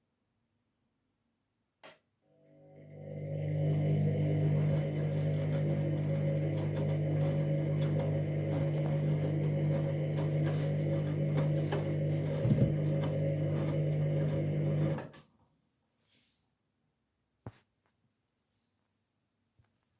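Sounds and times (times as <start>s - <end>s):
washing machine motor hum: 2.4s - 15.2s.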